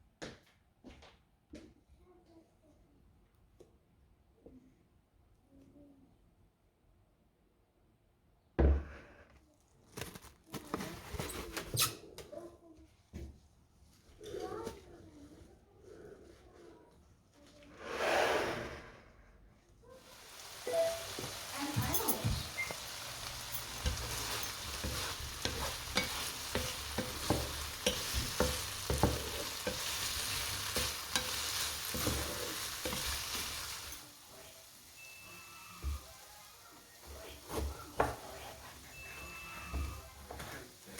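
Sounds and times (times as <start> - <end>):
food sizzling in a frying pan: 20.0 - 40.9
utensil knocking against pan: 23.4 - 33.4.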